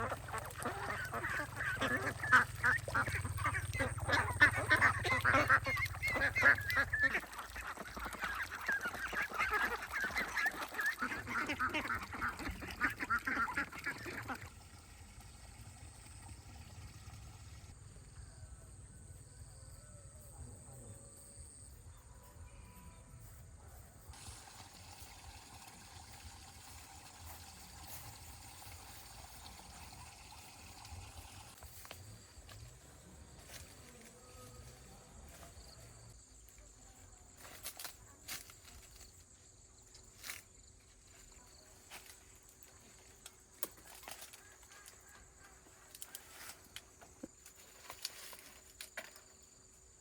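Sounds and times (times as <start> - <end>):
flock of birds calling: 0.0 - 14.3.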